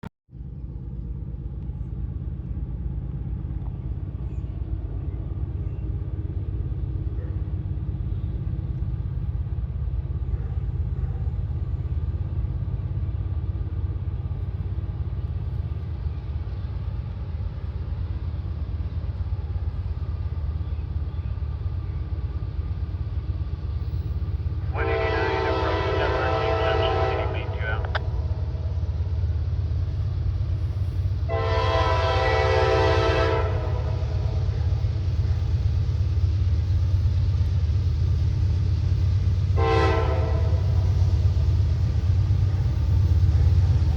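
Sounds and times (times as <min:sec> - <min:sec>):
diesel locomotives rumbling: 0:00.3 - 0:43.9
locomotive air horn: 0:24.7 - 0:27.9, 0:31.3 - 0:34.5, 0:39.6 - 0:40.9.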